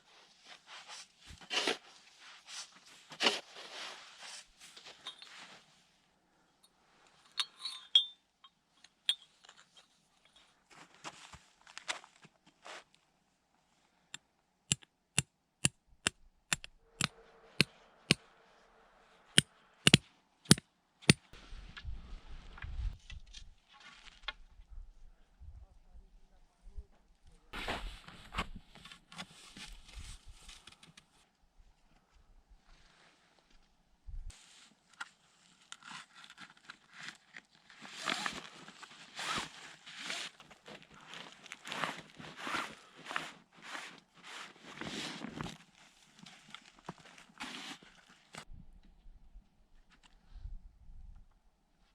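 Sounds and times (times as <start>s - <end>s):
hand tool striking: 14.7s - 17.1s
sharp clicks and scrapes: 14.7s - 17.7s, 19.9s - 21.2s.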